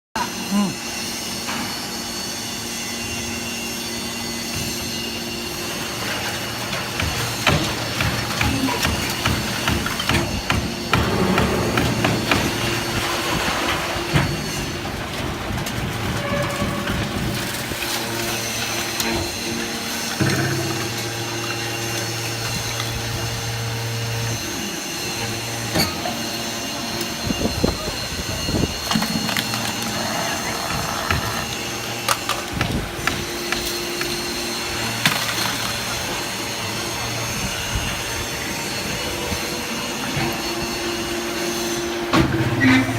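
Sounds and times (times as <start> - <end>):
can baler mechanical hum: 0.2 - 42.9
baler motor humming: 18.1 - 32.1.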